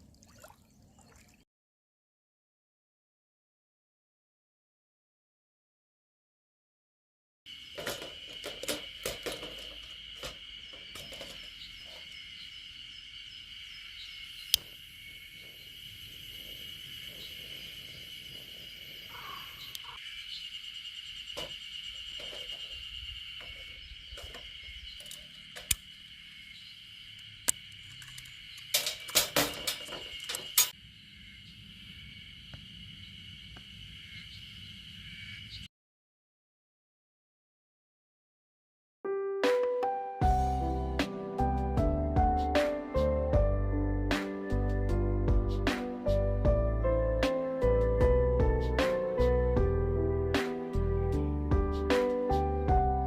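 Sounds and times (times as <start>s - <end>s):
insects chirring: 7.5s - 35.7s.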